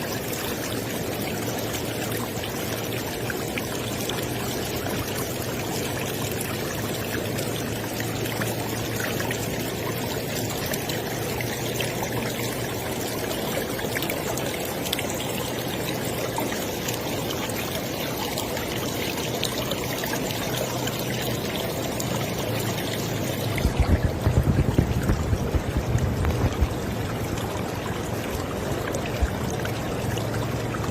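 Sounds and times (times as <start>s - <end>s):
river water flowing: 0.0s - 30.9s
low rumble: 23.1s - 29.8s.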